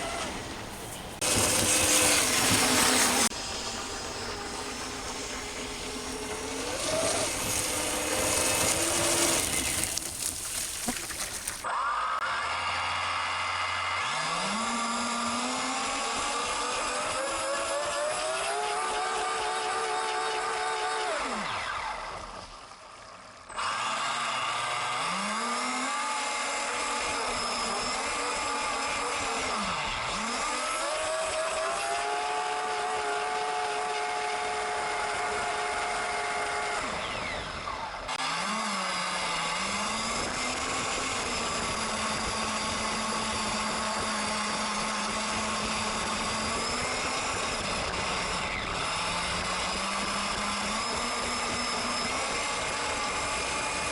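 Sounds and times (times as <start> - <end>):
electric motor whining: 0.0 - 11.7, 23.5 - 53.9.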